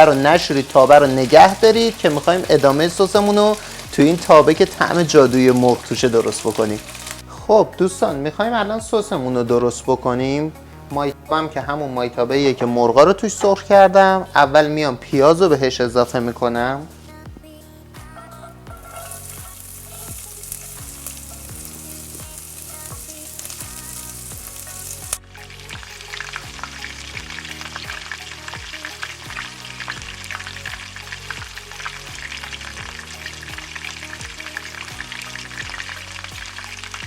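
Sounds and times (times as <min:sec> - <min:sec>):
onion sizzling in hot oil: 0:00.0 - 0:07.3, 0:18.7 - 0:37.0.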